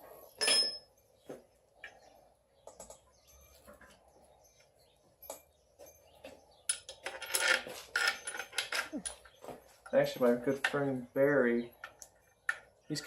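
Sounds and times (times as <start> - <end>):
metal tools clinking: 0.4 - 0.9, 5.2 - 9.4.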